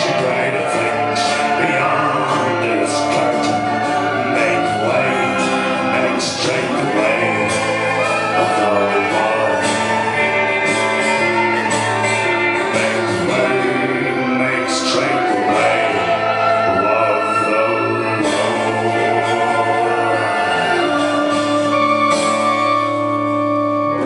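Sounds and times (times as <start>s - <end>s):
live band music: 0.0s - 24.0s
people singing: 0.0s - 24.0s.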